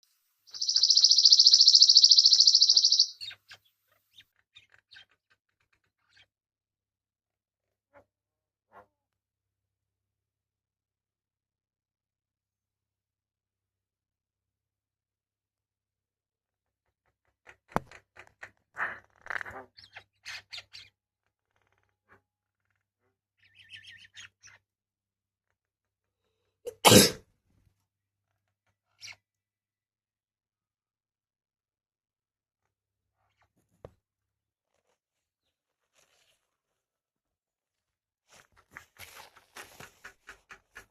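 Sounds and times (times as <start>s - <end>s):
small bird chirping: 0.4s - 6.4s, 19.6s - 21.8s, 23.4s - 24.7s, 28.8s - 29.3s
songbird high-pitched trill: 0.5s - 3.4s
faint short bird chirps: 0.5s - 5.2s
loud sneeze-like burst: 26.7s - 27.2s.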